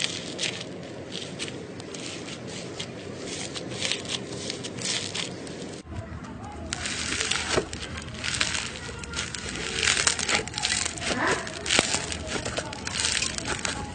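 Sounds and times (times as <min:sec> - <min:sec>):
slime squishing and crackling: 0:00.0 - 0:05.8, 0:06.6 - 0:13.9
slime popping: 0:06.7 - 0:13.9.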